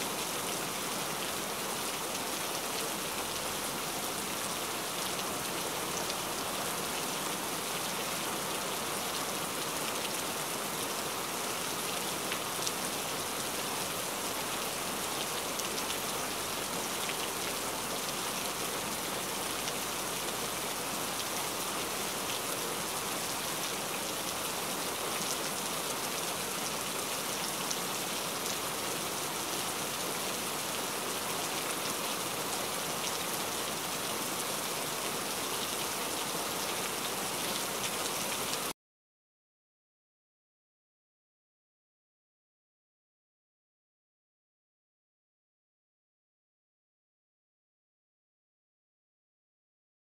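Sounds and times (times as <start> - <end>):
heavy rain falling: 0.0 - 38.7.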